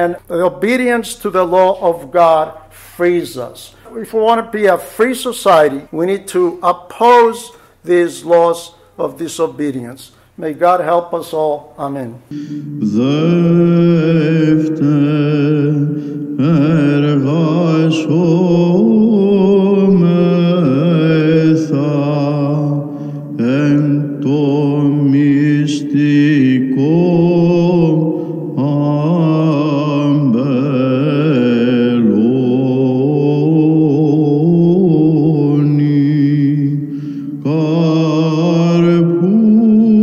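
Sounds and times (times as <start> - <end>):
held drone note: 12.3 - 31.5
voices singing a slow chant: 12.3 - 40.0.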